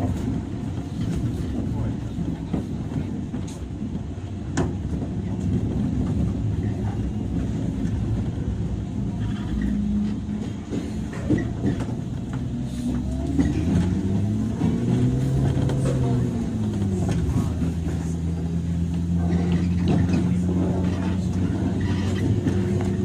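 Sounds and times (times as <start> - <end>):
train wheels and motors rumbling: 0.0 - 23.0.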